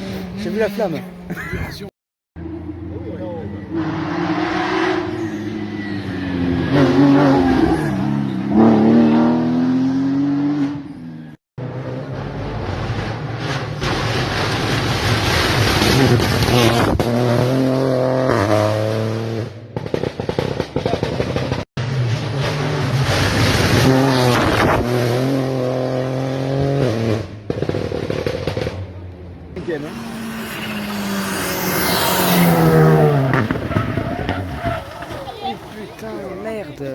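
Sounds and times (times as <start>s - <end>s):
rally car engine accelerating: 2.4s - 36.2s
rapid exhaust pops: 33.1s - 36.2s.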